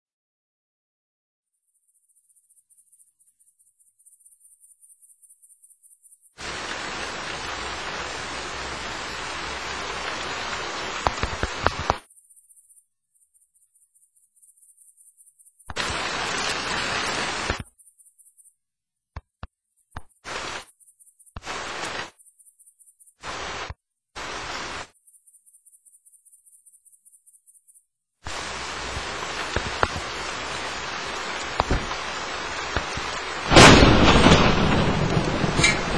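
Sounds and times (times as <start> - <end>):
rain: 6.4 - 12.1, 15.7 - 17.7, 20.3 - 20.6, 21.4 - 22.1, 23.2 - 24.9, 28.3 - 35.9.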